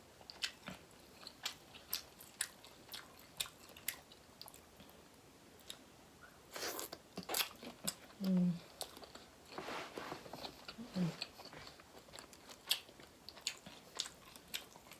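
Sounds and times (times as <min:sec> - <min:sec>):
wet chewing clicks and smacks: 0:00.2 - 0:05.0, 0:11.2 - 0:14.9.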